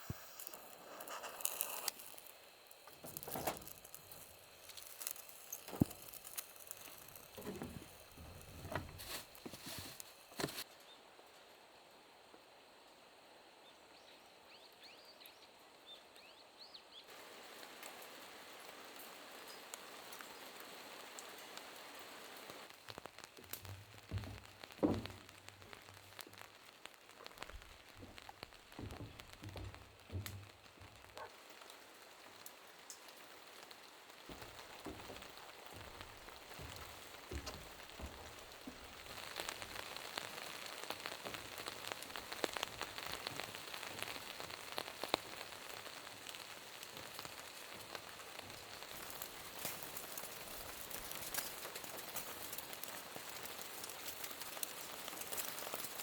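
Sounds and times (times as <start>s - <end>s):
rain pattering: 0.0s - 10.7s, 17.1s - 56.0s
soft low thumps: 27.4s - 31.2s.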